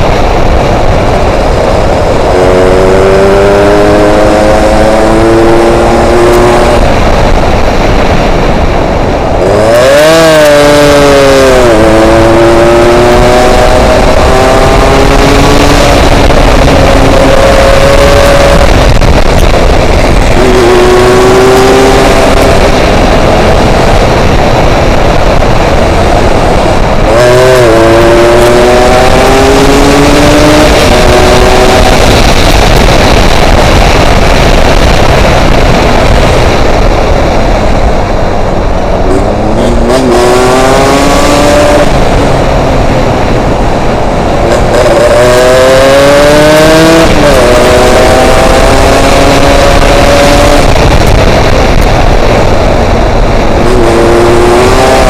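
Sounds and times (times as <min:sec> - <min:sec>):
motorcycle engine revving: 0:00.0 - 0:55.0
wind noise on microphone: 0:00.0 - 0:55.0.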